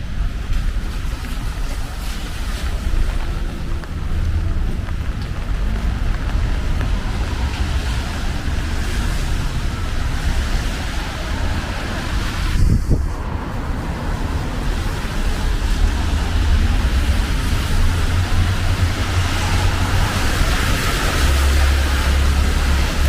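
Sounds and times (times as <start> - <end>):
rain hiss: 0.0 - 23.0
traffic on wet streets: 0.0 - 23.0
wind rumble on microphone: 0.0 - 23.0.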